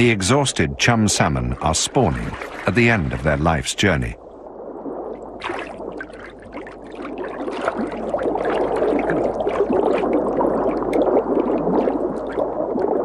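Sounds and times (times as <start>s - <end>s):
shallow river water splashing: 0.0s - 13.0s.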